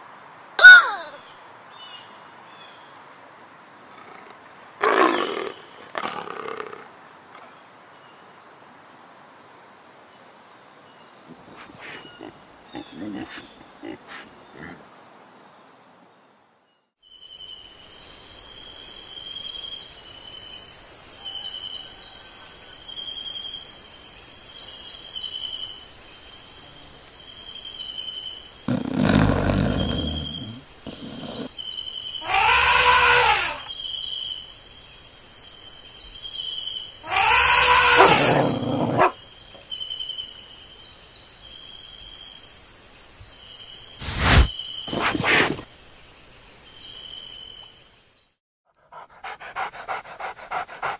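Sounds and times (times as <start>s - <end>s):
loud animal calls: 0.6s - 1.2s, 28.7s - 31.5s, 32.2s - 33.7s, 37.0s - 39.2s, 48.9s - 50.9s
pulsing insect chorus: 17.0s - 48.2s, 49.0s - 50.9s
repeating insect chirp: 17.0s - 48.2s.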